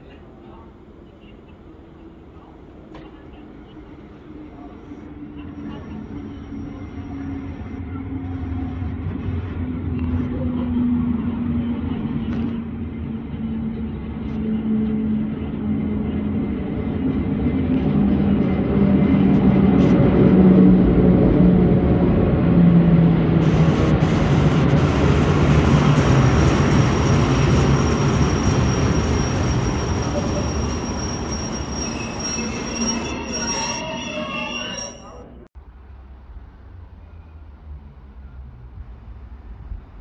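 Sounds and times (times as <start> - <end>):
locomotive motor hum: 20.1 - 35.4
freight wagons rumbling: 22.2 - 35.5
high wheel squeal: 25.2 - 35.5.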